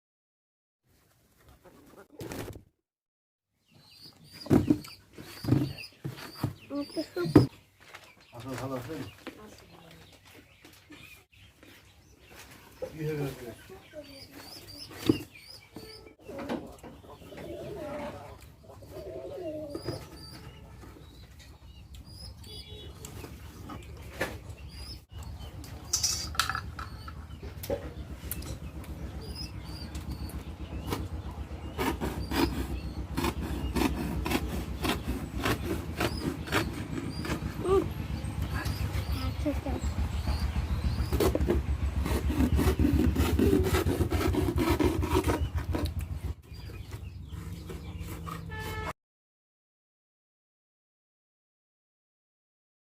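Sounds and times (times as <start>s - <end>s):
small birds chirping: 3.6s - 48.8s
sharp knocks or rustles: 41.0s - 42.6s
rhythmic scraping strokes: 41.0s - 46.0s.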